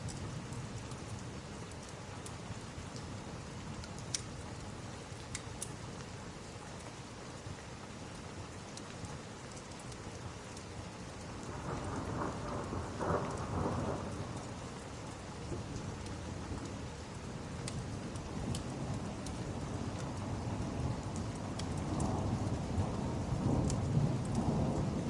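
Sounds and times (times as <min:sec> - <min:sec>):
fireplace crackles: 0:00.0 - 0:25.0
steady rain: 0:00.0 - 0:25.0
thunder rumbling: 0:11.4 - 0:14.8, 0:17.7 - 0:25.0.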